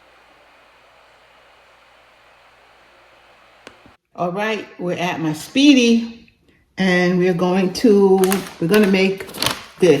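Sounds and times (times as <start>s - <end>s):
faint background hiss: 0.0s - 4.9s.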